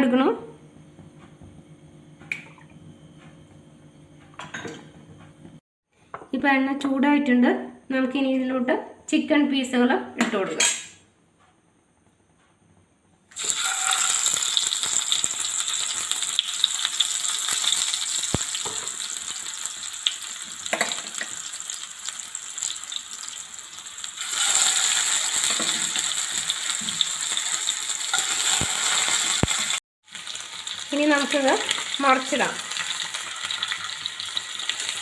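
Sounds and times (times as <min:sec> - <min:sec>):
chicken sizzling in hot oil: 0:13.3 - 0:35.0.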